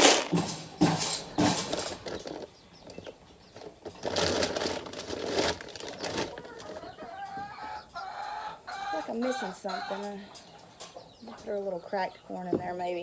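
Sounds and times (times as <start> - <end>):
dry feed rattling as poured: 0.0 - 2.5, 3.9 - 6.8.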